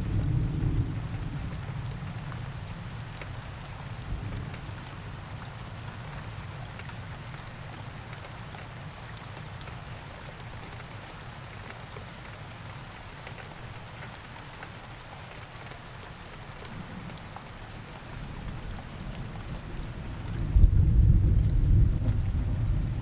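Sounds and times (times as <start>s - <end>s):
low thunder rumble: 0.0s - 1.9s, 19.4s - 23.0s
steady rain: 0.0s - 23.0s.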